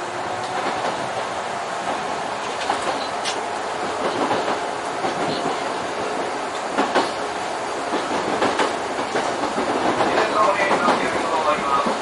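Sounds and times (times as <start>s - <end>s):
electric train rolling: 0.0s - 12.0s
wheels clicking over rail joints: 1.8s - 7.2s, 7.8s - 12.0s.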